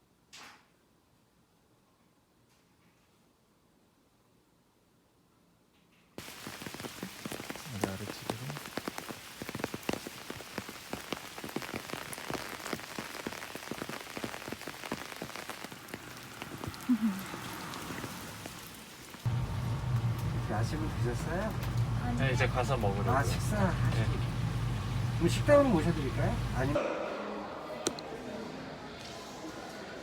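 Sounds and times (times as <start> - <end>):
rain pattering: 6.2 - 26.8.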